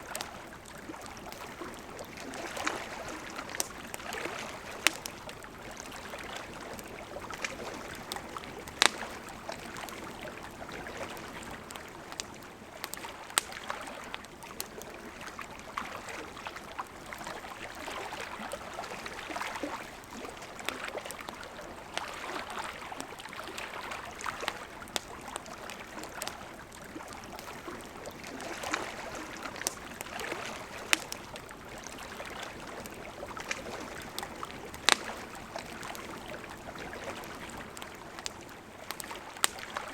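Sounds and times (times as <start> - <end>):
campfire crackling: 0.0 - 39.9
river flowing: 0.0 - 39.9.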